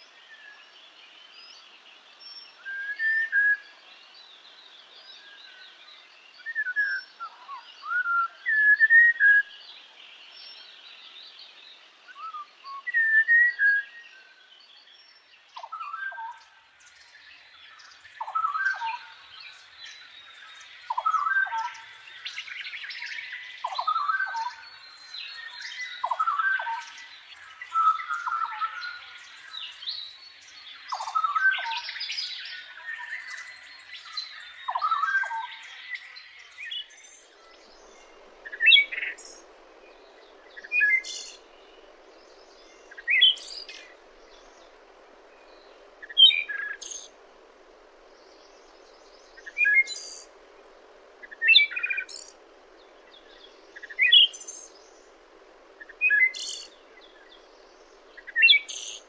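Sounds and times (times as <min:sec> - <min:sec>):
songbirds chirping: 0:00.0 - 0:59.0
faint steady hum: 0:16.4 - 0:59.0.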